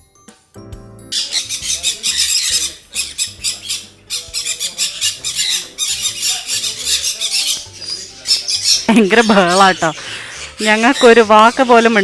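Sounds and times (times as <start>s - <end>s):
parrots screeching: 1.1s - 12.0s.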